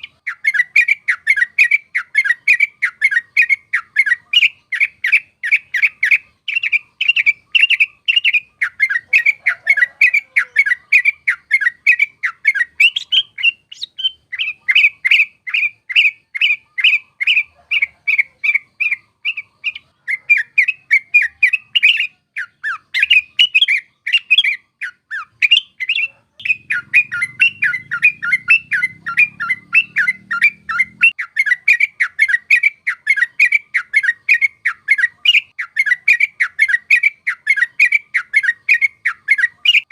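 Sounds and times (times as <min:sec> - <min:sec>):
bird rolling chatter: 0:02.2 - 0:35.1.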